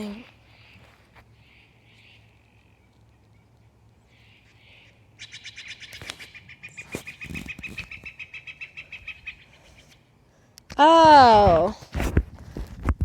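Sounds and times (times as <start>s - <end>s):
woodpecker calling: 1.4s - 10.0s.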